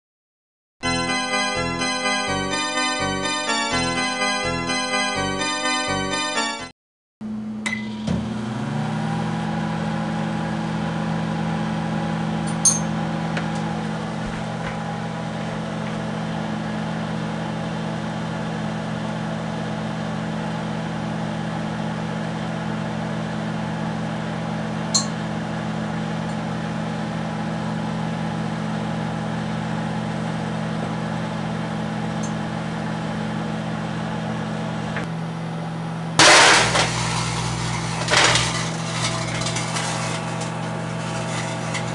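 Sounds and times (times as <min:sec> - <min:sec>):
microwave oven humming: 0:07.2 - 0:41.9
loud burst of noise: 0:36.2 - 0:41.9.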